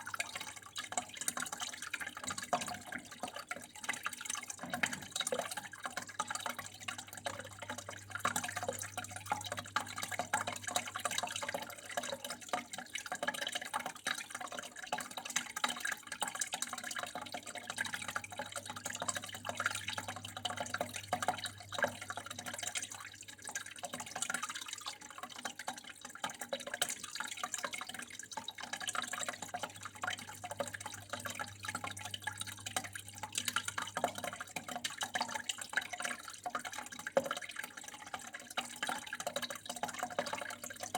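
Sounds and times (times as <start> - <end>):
water trickling and splashing: 0.0 - 40.9.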